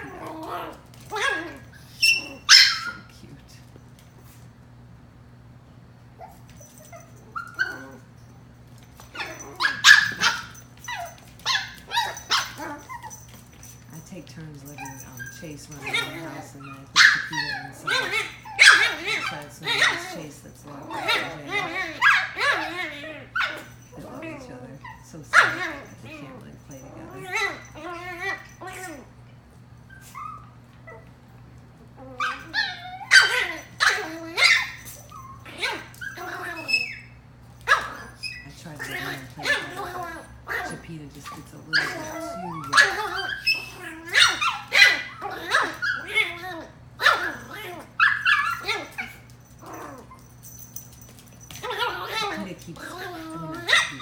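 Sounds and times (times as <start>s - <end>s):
puppies yipping and barking: 0.0s - 3.1s, 6.2s - 29.1s, 29.7s - 31.2s, 32.0s - 54.0s.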